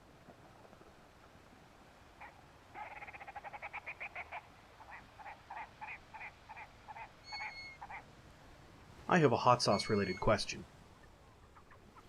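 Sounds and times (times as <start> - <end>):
grouse croaking: 2.2 - 8.1, 9.7 - 12.0.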